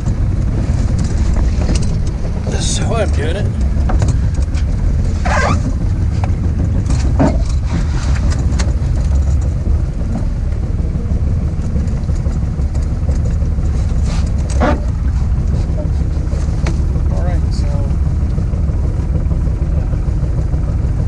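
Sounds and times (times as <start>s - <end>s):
outboard motor running: 0.0s - 21.0s
wind buffeting microphone: 0.0s - 21.0s
scrapes and knocks: 3.5s - 10.3s.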